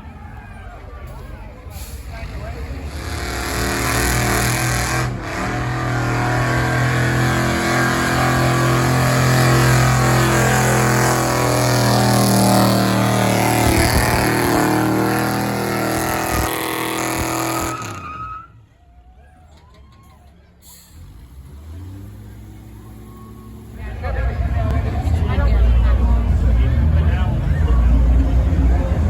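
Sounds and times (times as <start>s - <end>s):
truck engine running under load: 0.9s - 18.5s, 19.4s - 29.0s.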